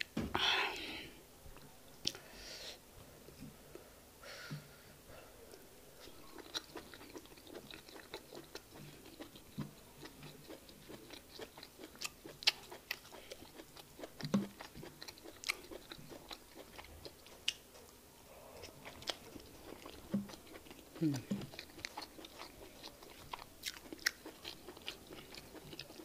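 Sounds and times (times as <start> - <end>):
close chewing: 5.5 - 26.0.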